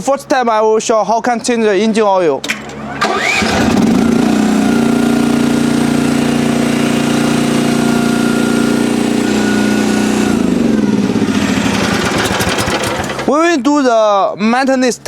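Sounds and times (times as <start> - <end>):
small diesel engine running: 2.6 - 13.4.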